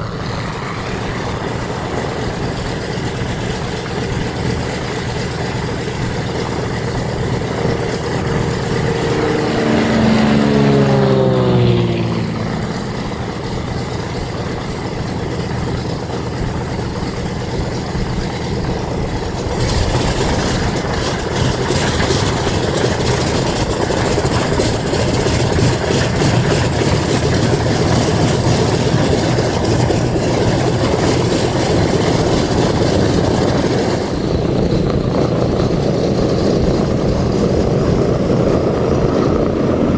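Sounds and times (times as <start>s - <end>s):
propeller plane engines running: 0.0s - 39.9s.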